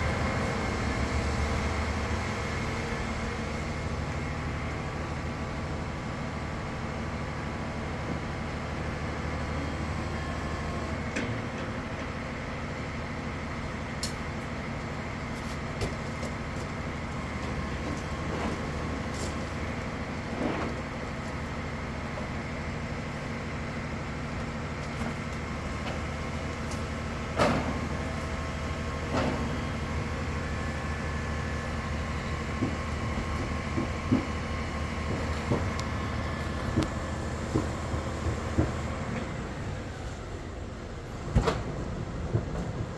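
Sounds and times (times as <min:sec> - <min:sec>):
truck engine running: 0:00.0 - 0:42.9
knocks and clanks: 0:32.5 - 0:36.0.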